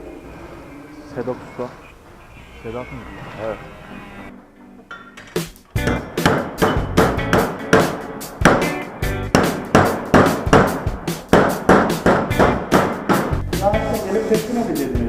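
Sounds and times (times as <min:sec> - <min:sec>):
background music: 0:00.0 - 0:15.0
hammer on sheet steel: 0:05.8 - 0:13.4.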